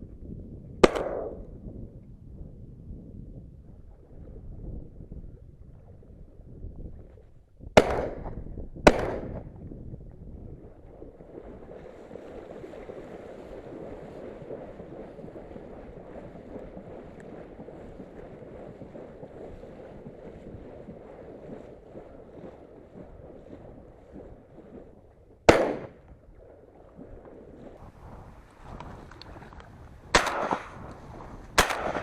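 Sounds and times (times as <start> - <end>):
wind noise on microphone: 0.0 - 32.0
shotgun shots echoing: 0.8 - 1.4, 7.8 - 9.4, 25.5 - 26.0, 30.1 - 30.8, 31.6 - 32.0.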